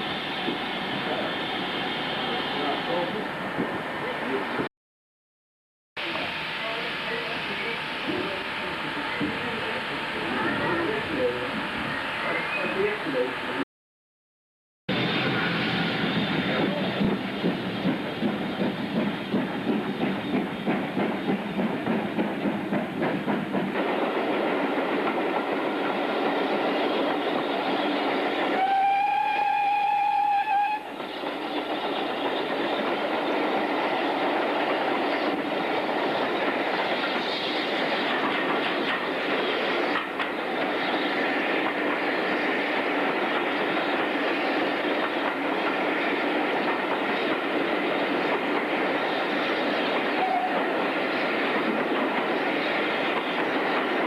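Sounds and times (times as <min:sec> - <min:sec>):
train running on track: 0:00.0 - 0:04.7, 0:06.0 - 0:13.6, 0:14.9 - 0:54.0
train whistle: 0:28.5 - 0:30.9, 0:50.2 - 0:50.6.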